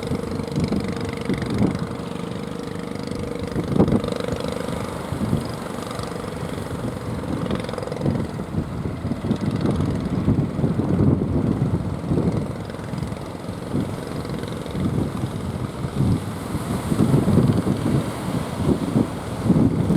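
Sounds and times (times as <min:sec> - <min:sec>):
boat engine humming: 0:00.0 - 0:19.9
wind buffeting microphone: 0:00.0 - 0:19.9.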